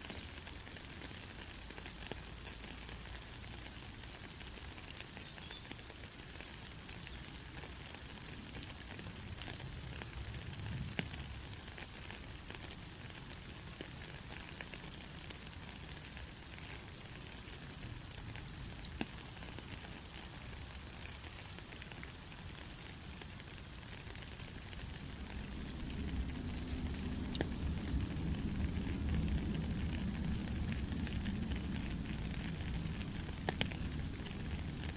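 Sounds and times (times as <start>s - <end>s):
faint crackles: 0.0s - 34.9s
white noise hiss: 0.0s - 34.9s
low rumble: 24.9s - 34.9s.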